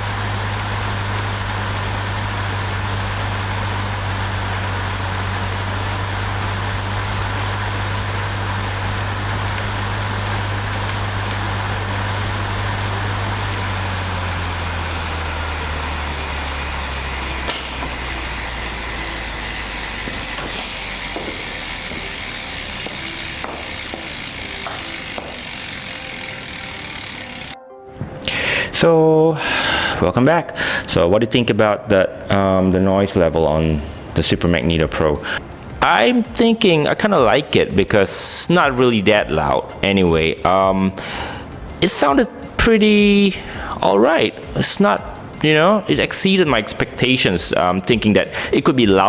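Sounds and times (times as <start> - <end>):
bike trainer roller humming: 0.0 - 27.6, 32.3 - 49.0.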